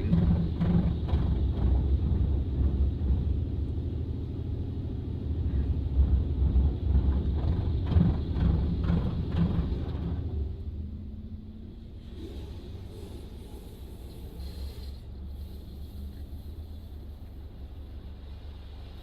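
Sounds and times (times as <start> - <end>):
low rumble: 0.0 - 19.0
water spraying onto car: 11.8 - 19.0.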